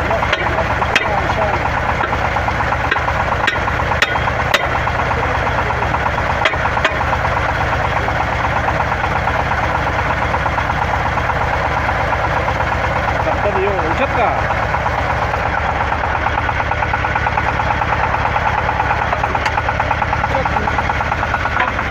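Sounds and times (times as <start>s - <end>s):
drilling rig engine running: 0.0s - 21.9s
sharp knocks: 2.9s - 4.9s, 6.4s - 7.0s.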